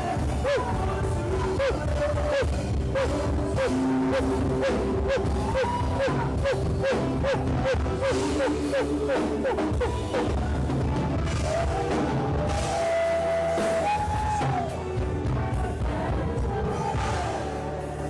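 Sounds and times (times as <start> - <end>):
worship band music: 0.0 - 18.0.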